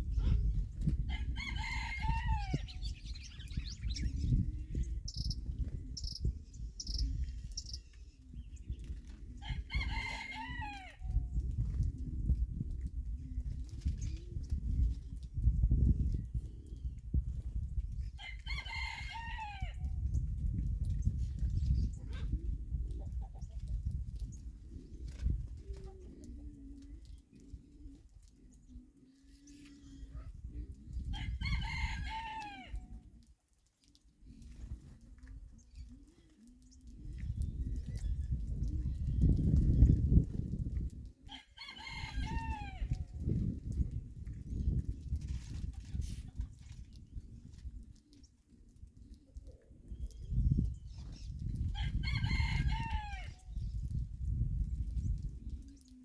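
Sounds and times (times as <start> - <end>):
small bird chirping: 5.0 - 5.4, 6.0 - 7.9
rooster crowing: 9.6 - 10.9, 41.6 - 42.9
pigeon cooing: 21.9 - 33.2, 34.2 - 39.8, 44.6 - 51.7, 55.1 - 56.0.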